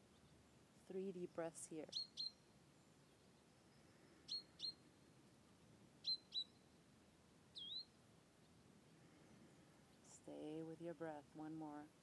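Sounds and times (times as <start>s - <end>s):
quiet outdoor background: 0.0s - 12.0s
small bird calling: 1.8s - 5.0s, 6.0s - 6.8s, 7.5s - 10.2s.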